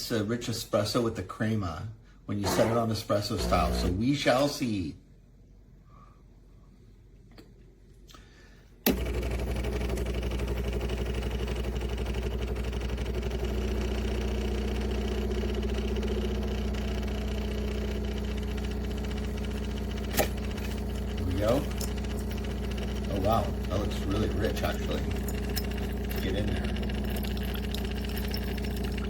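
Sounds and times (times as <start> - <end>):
coffee maker motor humming: 2.4 - 4.0, 8.9 - 29.0.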